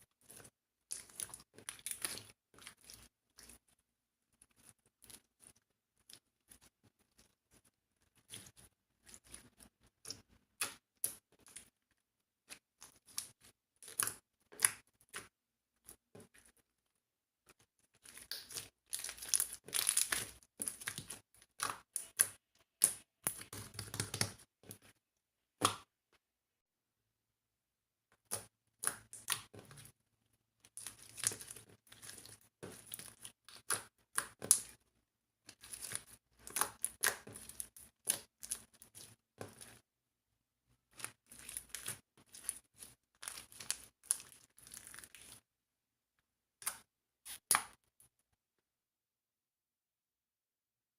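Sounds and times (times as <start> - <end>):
slime squished by hand: 17.9 - 24.9, 30.7 - 34.8, 35.4 - 39.8, 40.9 - 45.4.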